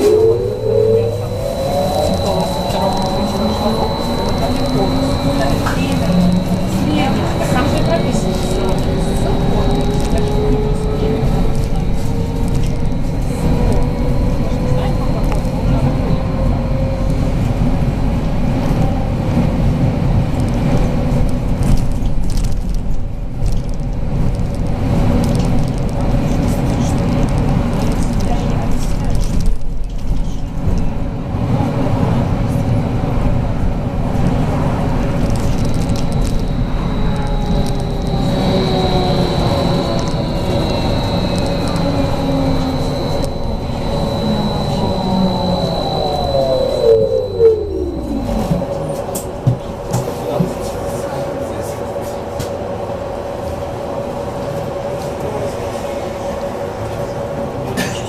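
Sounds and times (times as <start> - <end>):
faint steady whine: 0.0 - 18.4, 34.5 - 51.7
bus running gear rumble: 0.0 - 58.0.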